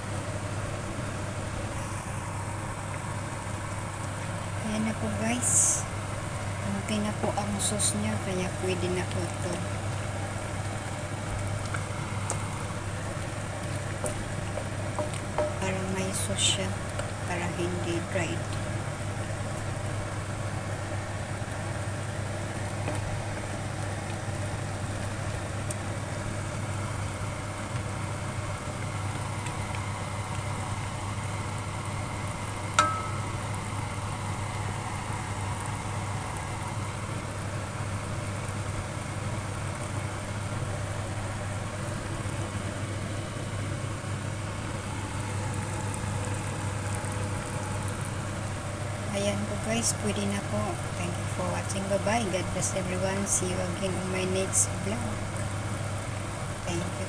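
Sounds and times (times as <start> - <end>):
chicken wings sizzling in a wok: 0.0 - 57.0
steady low hum: 0.0 - 57.0.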